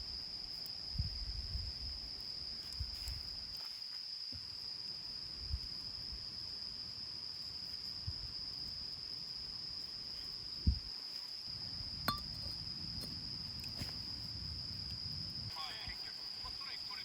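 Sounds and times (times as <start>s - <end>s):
crickets trilling: 0.0s - 17.0s
light clink: 12.0s - 13.9s.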